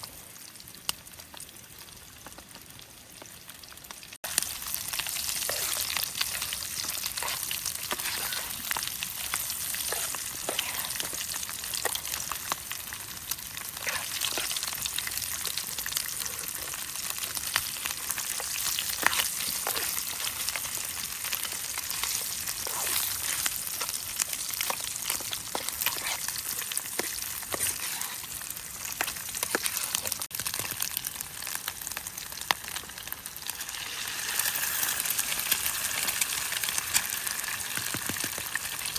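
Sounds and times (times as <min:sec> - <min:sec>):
food sizzling in a pan: 0:00.0 - 0:38.9
oil pops and crackles: 0:35.4 - 0:38.7.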